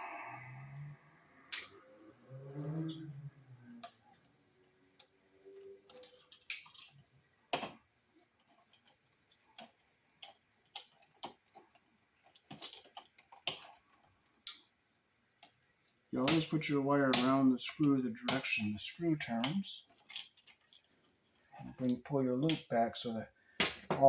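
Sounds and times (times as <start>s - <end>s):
wire and tools clicking: 1.5s - 1.8s, 2.8s - 14.8s, 15.4s - 22.8s.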